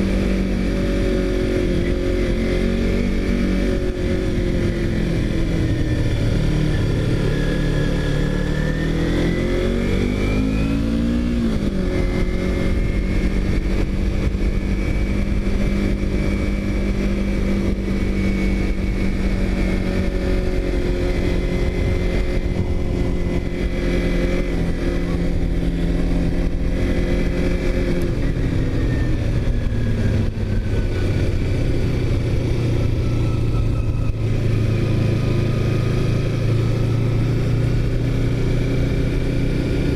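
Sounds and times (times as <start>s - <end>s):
vehicle engine revving: 0.0s - 39.9s.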